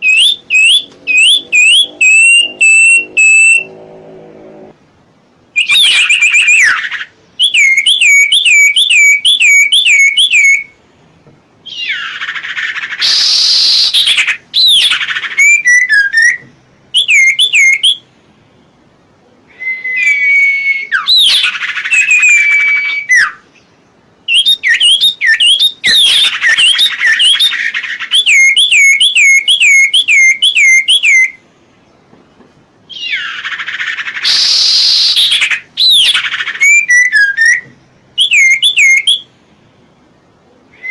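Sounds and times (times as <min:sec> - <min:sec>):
songbird trilling: 0:00.0 - 0:03.7, 0:05.6 - 0:10.7, 0:17.0 - 0:18.0, 0:20.0 - 0:23.4, 0:24.3 - 0:31.4, 0:32.9 - 0:39.3
harsh raspy bird calls: 0:00.0 - 0:04.5, 0:11.6 - 0:16.4, 0:20.0 - 0:31.4, 0:32.9 - 0:39.3.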